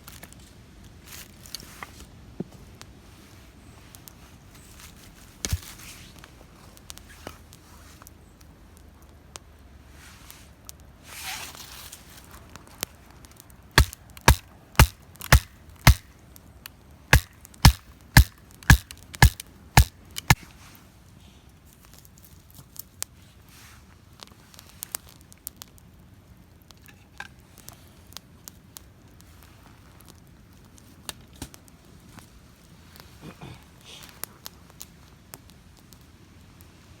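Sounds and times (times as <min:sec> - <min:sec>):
firewood being chopped: 0:05.4 - 0:05.8, 0:13.8 - 0:16.2, 0:17.1 - 0:20.6.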